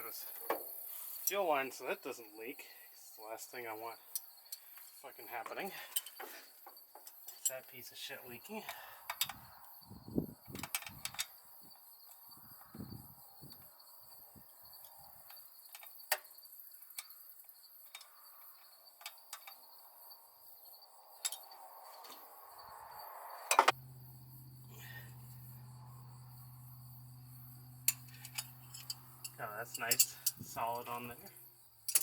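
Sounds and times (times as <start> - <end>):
crickets chirping: 0.0 - 32.0
hand tools clicking and clinking: 5.8 - 7.6, 27.9 - 30.8.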